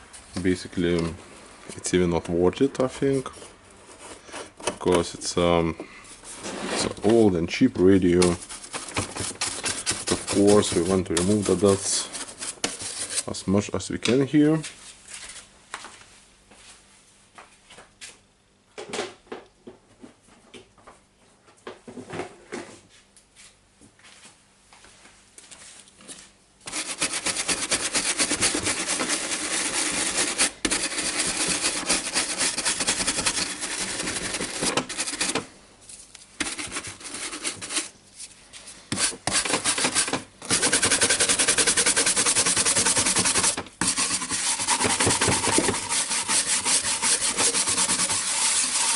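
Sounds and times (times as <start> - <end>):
brush scrubbing: 8.0 - 13.4, 26.7 - 35.4, 36.4 - 38.0, 38.9 - 48.9.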